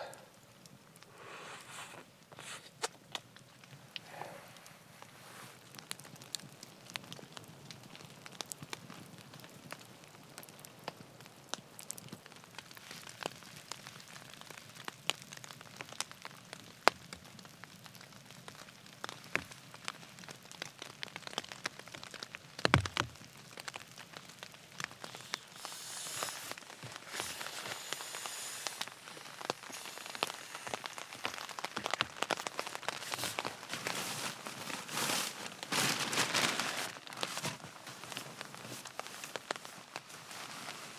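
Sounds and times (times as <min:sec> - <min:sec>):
rustling hiss: 0:00.0 - 0:06.4, 0:24.0 - 0:40.9
crackling campfire: 0:00.0 - 0:40.9
rain pattering on a tarp: 0:00.0 - 0:40.9.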